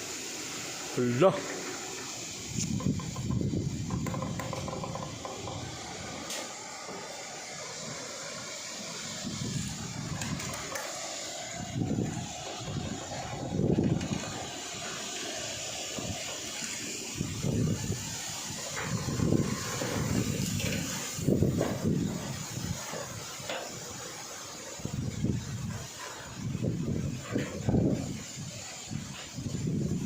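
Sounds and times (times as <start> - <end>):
wind hissing: 0.0 - 30.0
wind gusts buffeting microphone: 2.4 - 6.1, 9.2 - 15.0, 17.1 - 23.3, 24.8 - 30.0.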